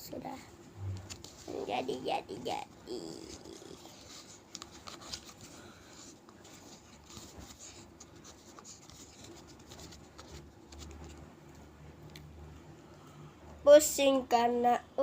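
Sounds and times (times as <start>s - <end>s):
faint scratching: 0.8s - 11.2s.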